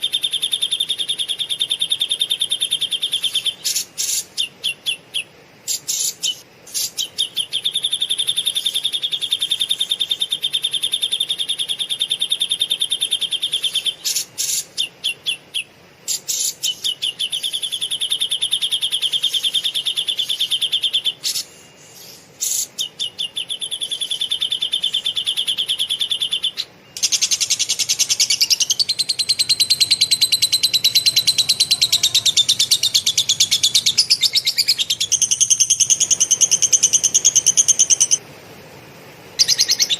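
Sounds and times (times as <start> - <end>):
bird singing buzzy trills: 0.0 - 38.3, 39.3 - 39.9
bird clicking bursts: 27.0 - 31.0.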